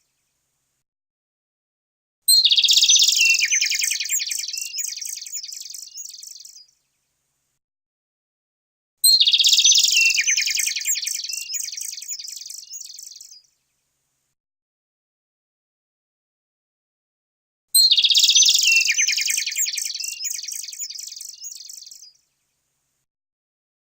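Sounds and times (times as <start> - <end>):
songbird singing trills: 2.3 - 6.8, 9.0 - 13.5, 17.8 - 22.2.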